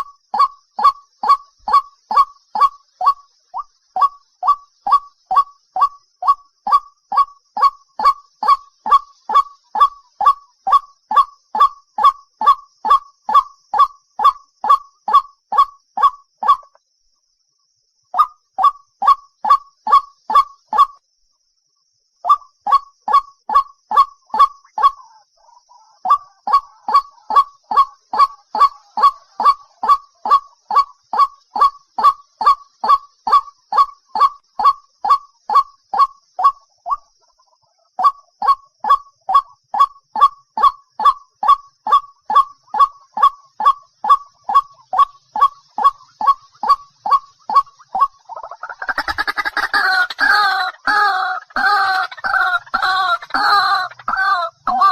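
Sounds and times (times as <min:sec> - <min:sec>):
waterhen calls: 0:00.0 - 0:16.8, 0:22.3 - 0:54.9.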